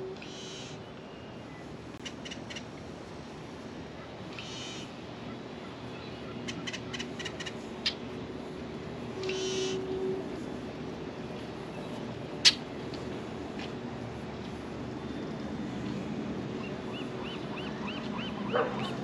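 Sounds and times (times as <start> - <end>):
open-air background noise: 0.0 - 19.0
birds calling: 9.2 - 10.4, 16.5 - 19.0.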